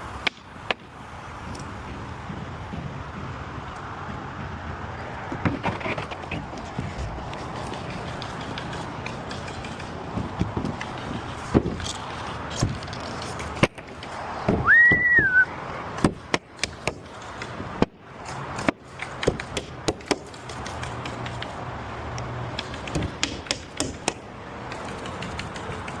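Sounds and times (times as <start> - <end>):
short high whistle: 14.6 - 15.5.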